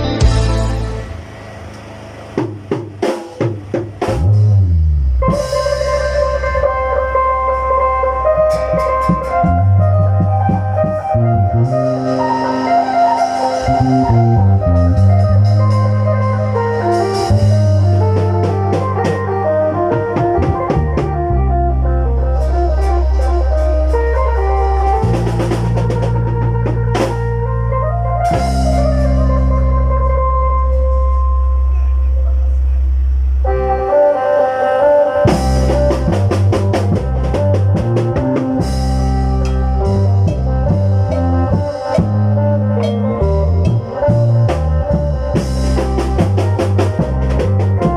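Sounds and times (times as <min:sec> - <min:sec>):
low drone: 0:00.0 - 0:02.6
drum and cymbal strikes: 0:00.0 - 0:06.5, 0:22.4 - 0:27.3, 0:35.3 - 0:47.9
band music: 0:00.0 - 0:47.9.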